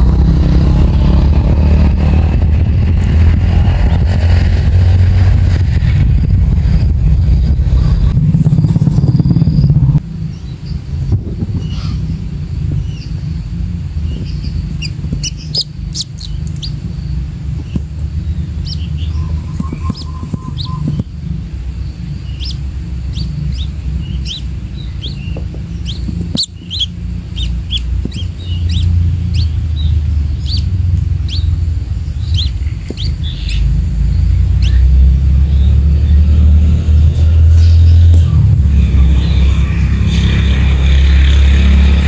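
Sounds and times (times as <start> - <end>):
low rumble: 0.0 - 42.0
high bird chirps: 8.1 - 12.2, 12.8 - 38.1.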